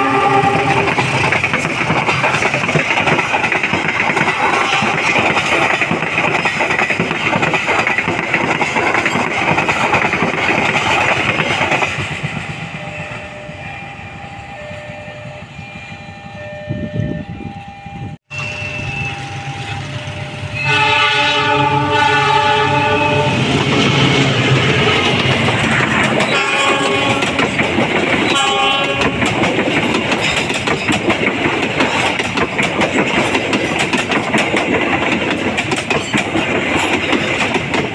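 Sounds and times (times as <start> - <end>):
train horn: 0.0 - 1.1, 4.3 - 5.1, 18.3 - 25.0, 26.3 - 27.4, 28.2 - 29.3
train passing on rails: 0.0 - 37.9.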